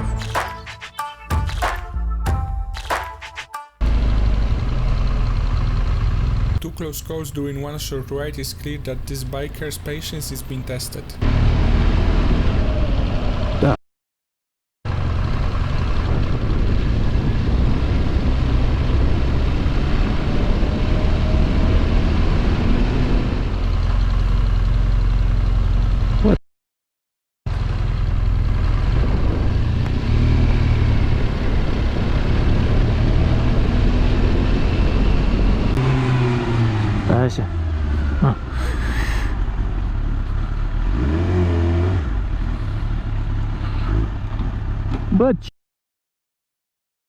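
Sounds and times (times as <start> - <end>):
motorcycle engine running: 3.8 - 6.6
wind noise on microphone: 28.8 - 32.3.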